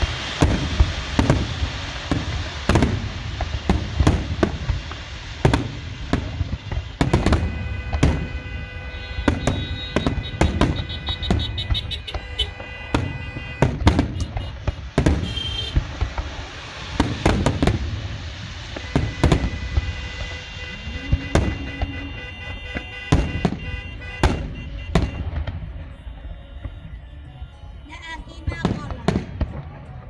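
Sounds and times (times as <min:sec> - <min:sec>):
fireworks bangs: 0:00.0 - 0:30.0
fireworks crackling: 0:00.0 - 0:30.0.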